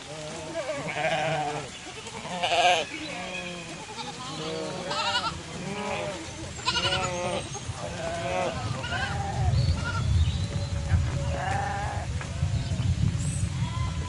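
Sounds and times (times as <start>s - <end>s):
livestock bleating: 0.1s - 10.0s.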